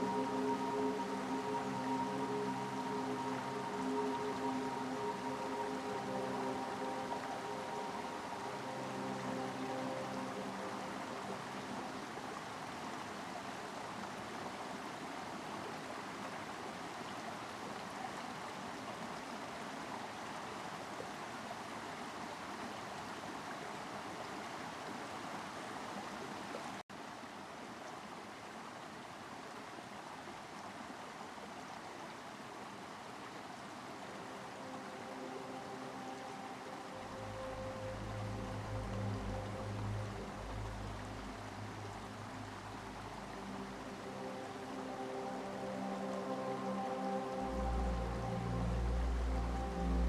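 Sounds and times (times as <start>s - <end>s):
running water rushing: 0.0s - 50.0s.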